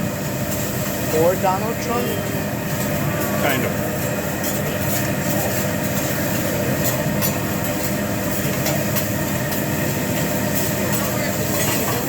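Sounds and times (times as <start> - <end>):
grill table noise: 0.0 - 12.0.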